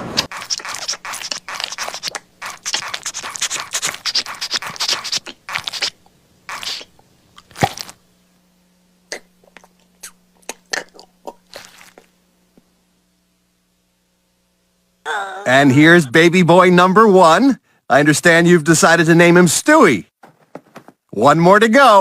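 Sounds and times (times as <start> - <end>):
faint steady hum: 0.0 - 22.0
lip smacks: 0.2 - 8.0, 9.1 - 12.1
person chewing and crunching: 0.2 - 8.0, 9.2 - 12.1.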